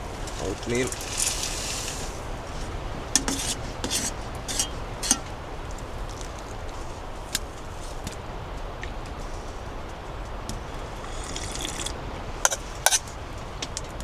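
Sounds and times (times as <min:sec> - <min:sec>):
spoon scraping against dish: 0:03.2 - 0:05.3, 0:11.0 - 0:11.9, 0:12.5 - 0:13.1.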